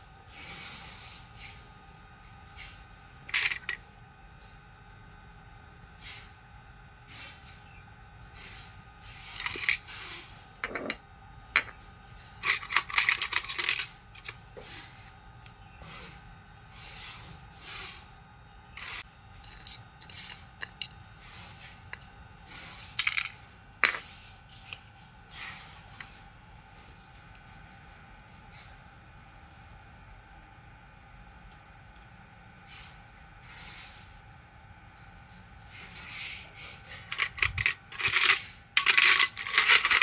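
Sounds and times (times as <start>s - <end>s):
metal parts and tools clattering: 3.3s - 3.8s, 9.2s - 9.9s, 10.6s - 14.4s, 18.8s - 21.1s, 21.9s - 22.1s, 22.9s - 24.7s, 36.8s - 40.0s.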